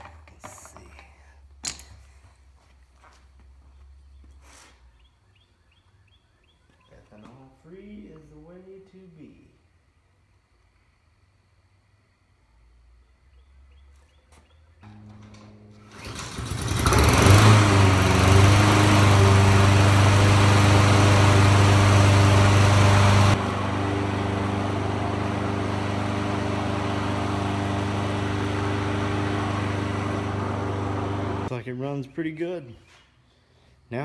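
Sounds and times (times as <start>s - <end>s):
lawn mower engine running: 14.8s - 31.5s.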